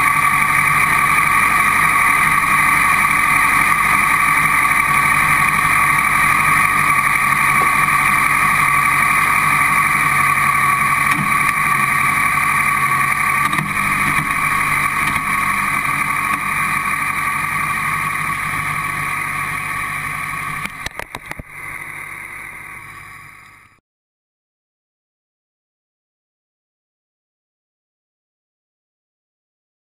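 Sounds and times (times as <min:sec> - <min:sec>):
buggy engine idling: 0:00.0 - 0:23.8.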